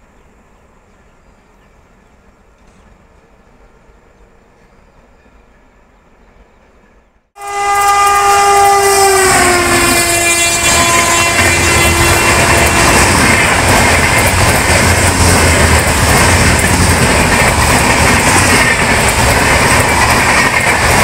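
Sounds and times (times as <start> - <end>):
locomotive horn: 7.4 - 13.6
train coaches rushing and clattering: 9.0 - 21.0.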